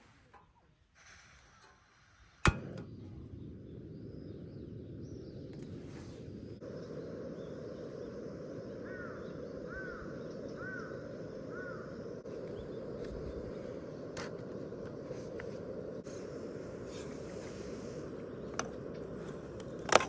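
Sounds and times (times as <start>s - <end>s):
sharp pops: 2.4s - 5.8s
low rushing background: 2.4s - 19.9s
bird calling: 3.4s - 13.9s.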